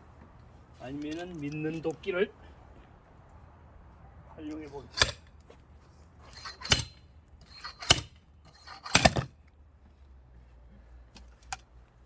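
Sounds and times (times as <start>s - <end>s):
metal-on-metal axe strikes: 4.9s - 5.2s, 6.5s - 7.0s, 7.7s - 8.1s, 8.8s - 9.3s.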